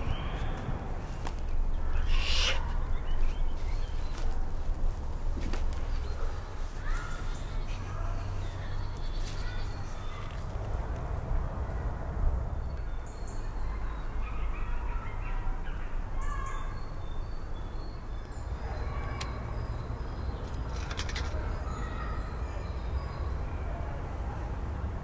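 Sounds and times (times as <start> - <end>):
birds calling: 0.0 - 10.5.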